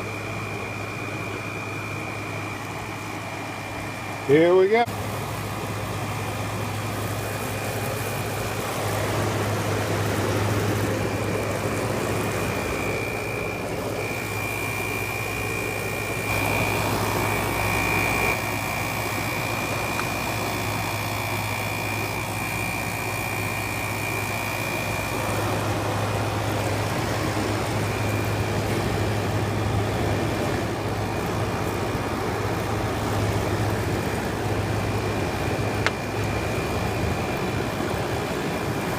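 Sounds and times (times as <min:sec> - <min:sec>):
air conditioner humming: 0:00.0 - 0:38.9.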